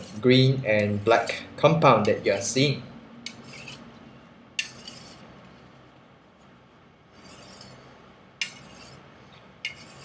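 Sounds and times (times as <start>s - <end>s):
knife blade scraping on strop: 3.3s - 3.9s, 4.6s - 5.3s, 7.1s - 9.0s, 9.6s - 10.0s.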